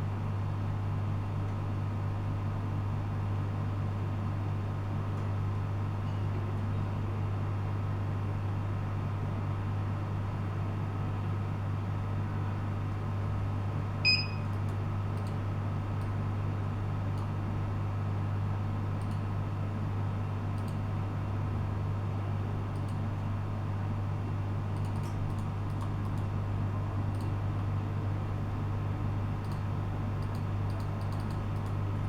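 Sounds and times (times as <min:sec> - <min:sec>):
low electrical hum: 0:00.0 - 0:32.0
short electronic beep: 0:14.1 - 0:14.4.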